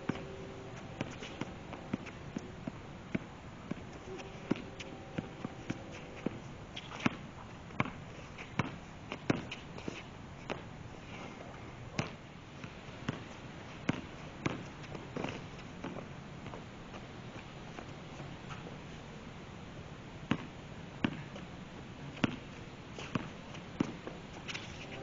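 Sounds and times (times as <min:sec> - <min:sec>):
basketball bouncing on court: 0:07.8 - 0:08.0, 0:13.0 - 0:13.3, 0:13.9 - 0:14.6, 0:20.3 - 0:21.2.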